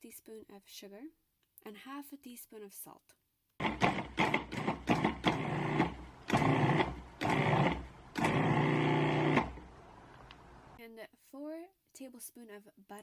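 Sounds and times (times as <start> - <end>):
blender motor pulsing: 3.6 - 10.8.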